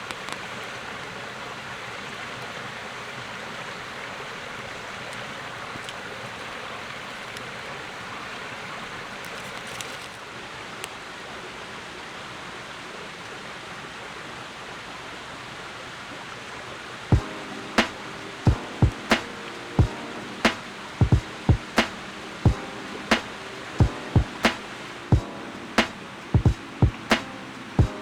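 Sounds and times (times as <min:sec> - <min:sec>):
rushing outdoor noise: 0:00.0 - 0:28.0
music with struck ringing notes: 0:17.1 - 0:28.0.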